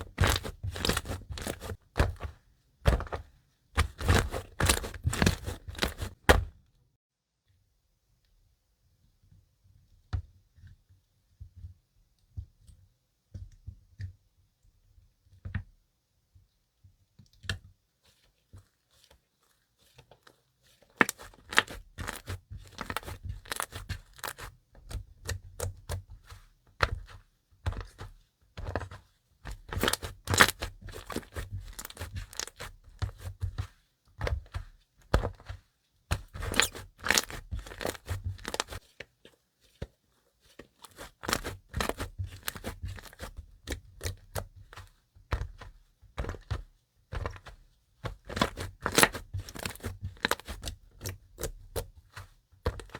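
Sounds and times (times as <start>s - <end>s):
slime crackling: 0.0s - 2.2s, 3.8s - 6.4s, 36.2s - 38.8s
slime popping and squelching: 0.0s - 2.3s, 3.8s - 6.5s, 29.5s - 33.3s, 36.1s - 38.8s, 40.9s - 43.3s.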